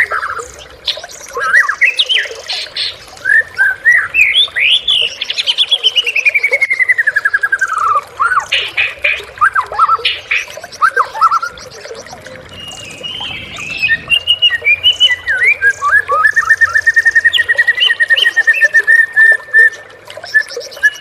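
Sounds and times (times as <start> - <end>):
bird singing clear whistles: 10.8 - 21.0
harsh rasping bird notes: 11.6 - 15.7.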